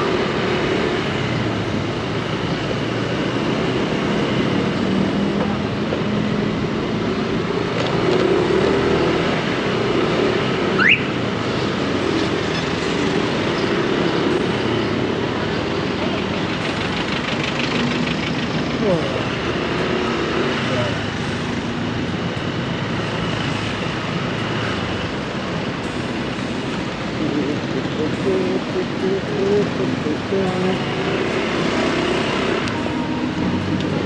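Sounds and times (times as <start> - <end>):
surrounding traffic: 0.0 - 34.0
scooter engine: 9.6 - 34.0.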